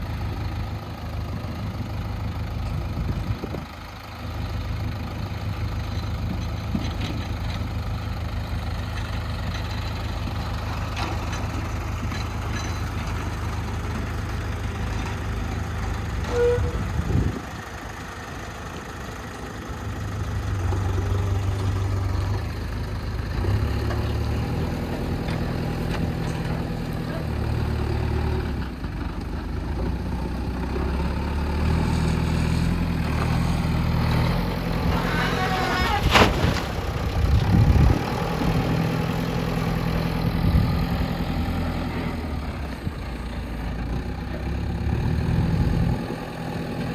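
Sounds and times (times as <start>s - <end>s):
diesel engine under load: 0.0s - 46.9s
short single tone: 16.3s - 16.8s.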